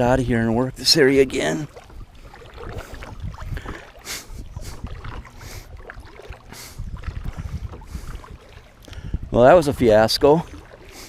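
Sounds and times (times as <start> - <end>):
wind rumbling on microphone: 0.0 - 11.0
paddle splashing in water: 0.8 - 11.0.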